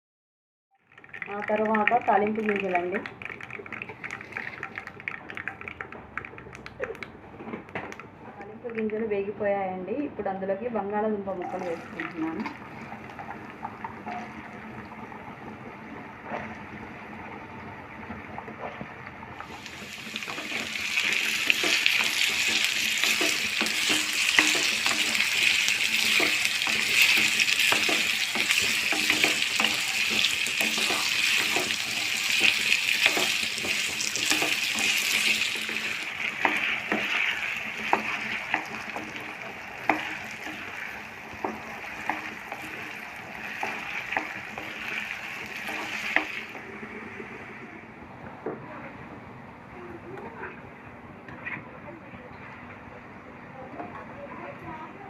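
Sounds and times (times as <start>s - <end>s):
potatoes sizzling in oil: 19.4s - 47.2s
spatula clicking and scraping: 20.1s - 46.3s.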